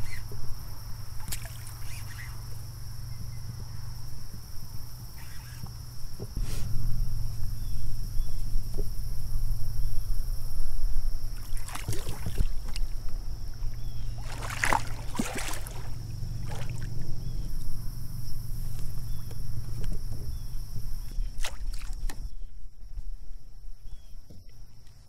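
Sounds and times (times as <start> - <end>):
steady low rumble: 0.0 - 24.8
water splashing beside a kayak: 0.1 - 2.7, 11.2 - 17.8, 18.6 - 22.4, 24.3 - 25.0.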